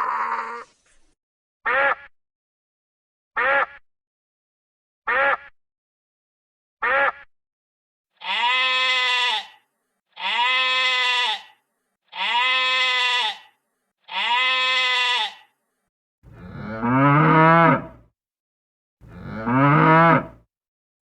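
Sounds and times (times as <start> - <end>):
sheep bleating: 5.1 - 5.5, 6.8 - 7.3, 8.2 - 15.5
cow mooing: 16.3 - 18.0, 19.0 - 20.5.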